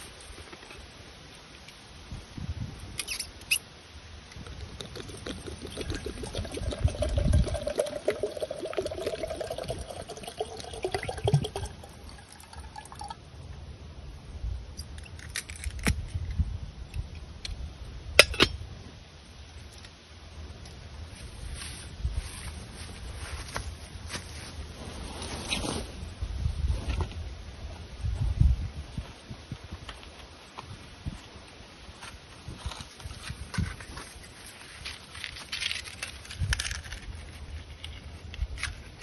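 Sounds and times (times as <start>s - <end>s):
liquid pouring into container: 4.4s - 13.2s.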